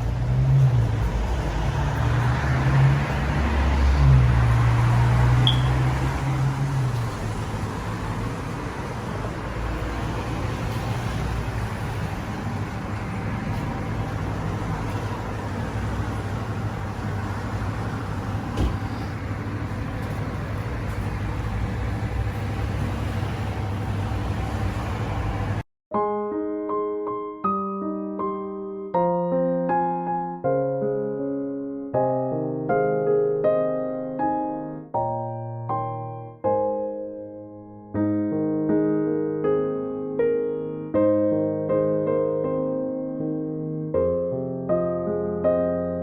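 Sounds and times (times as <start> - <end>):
vehicle engine hum: 0.0 - 25.6
road noise: 0.0 - 25.7
brief high chirp: 5.4 - 5.8
thump: 18.5 - 19.1.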